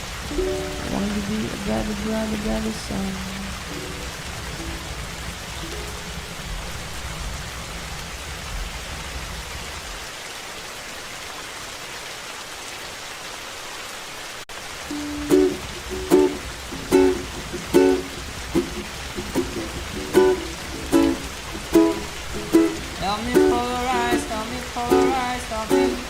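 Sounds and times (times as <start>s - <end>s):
ukulele plucking: 0.0s - 6.4s, 14.9s - 26.0s
steady rain hiss: 0.0s - 26.0s.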